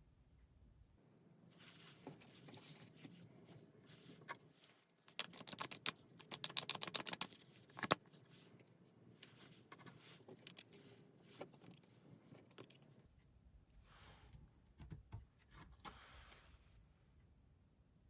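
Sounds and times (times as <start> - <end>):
cards being shuffled: 5.0 - 8.2.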